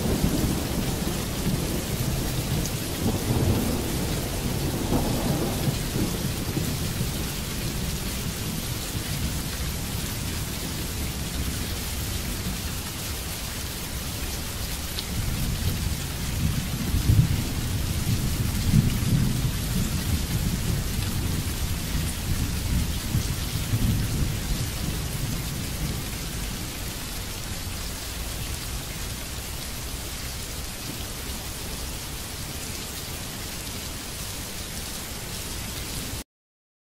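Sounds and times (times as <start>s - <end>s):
thunder rumbling: 0.0s - 12.6s, 15.2s - 27.1s
heavy rain hiss: 0.0s - 36.2s.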